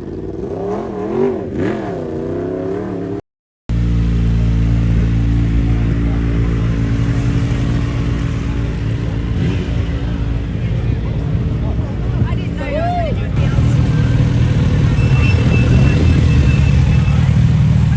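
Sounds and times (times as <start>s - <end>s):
engine revving: 0.0s - 10.5s, 13.4s - 17.9s
deep engine idling: 13.4s - 17.9s.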